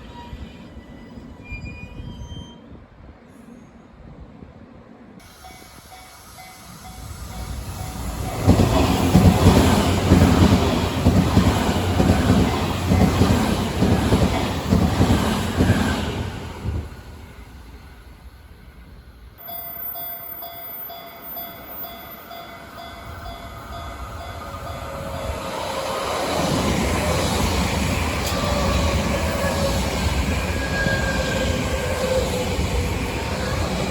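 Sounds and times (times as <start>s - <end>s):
train rumbling past: 0.0s - 33.9s.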